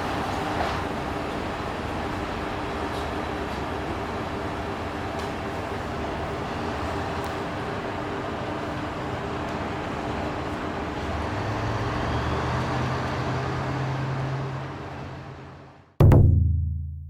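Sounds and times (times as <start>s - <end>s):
diesel railcar engine hum: 0.0s - 15.9s
booming hit with low ring: 16.0s - 17.0s.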